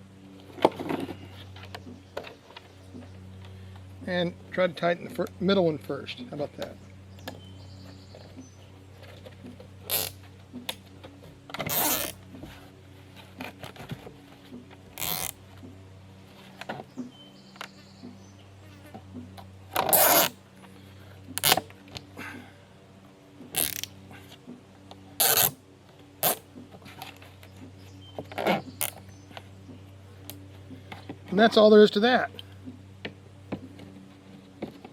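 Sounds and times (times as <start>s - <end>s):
low steady hum: 0.0s - 34.9s
zip ties ratcheting tight: 9.9s - 10.2s, 11.7s - 12.2s, 15.0s - 15.4s, 19.8s - 20.4s, 21.4s - 21.6s, 23.5s - 23.9s, 25.2s - 25.6s, 26.2s - 26.4s.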